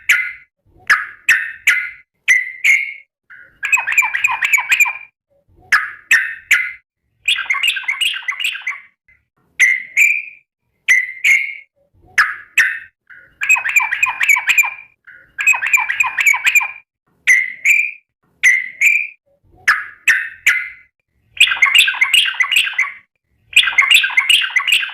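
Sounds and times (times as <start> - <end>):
bulbul singing warbling phrases: 21.4 - 24.9.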